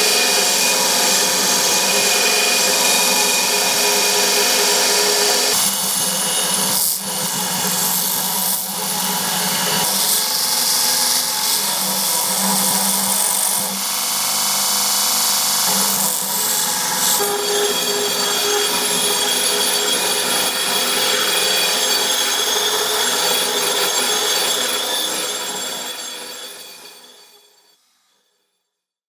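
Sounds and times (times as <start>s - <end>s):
power tool running: 0.0s - 27.2s.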